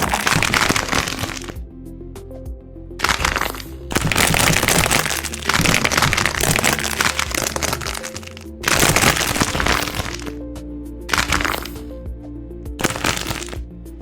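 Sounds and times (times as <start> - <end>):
dense crackling and crunching: 0.0 - 1.6, 3.0 - 10.3, 11.1 - 11.9, 12.8 - 13.6
background music with held notes: 0.0 - 14.0.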